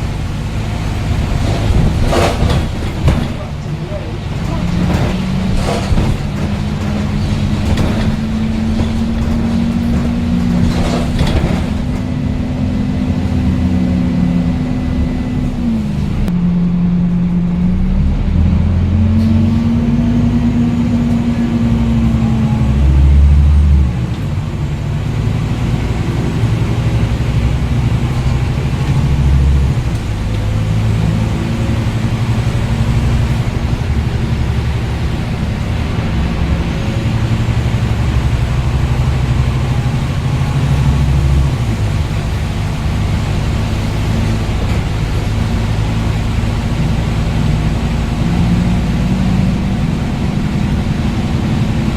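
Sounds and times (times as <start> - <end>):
bus diesel engine accelerating: 0.0 - 51.9.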